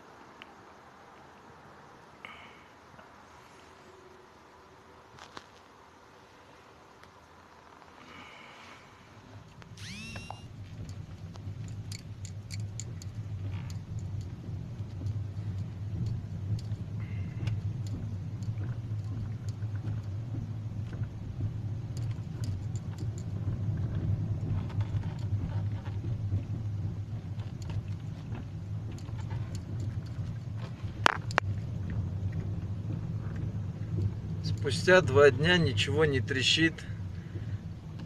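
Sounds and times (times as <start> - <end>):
car road and engine drone: 0.0 - 38.0.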